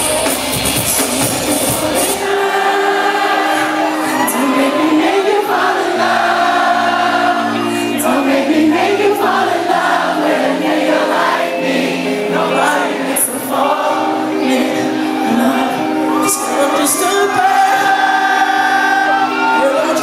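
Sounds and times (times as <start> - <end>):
man singing: 0.0 - 3.6, 11.9 - 20.0
live band with synth: 0.0 - 20.0.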